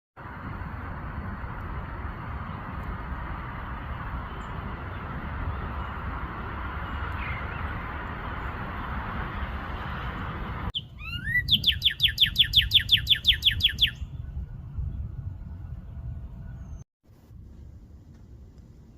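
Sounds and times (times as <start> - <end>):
steady rushing noise: 0.2 - 10.7
songbird whistling: 6.8 - 7.8, 10.8 - 14.2.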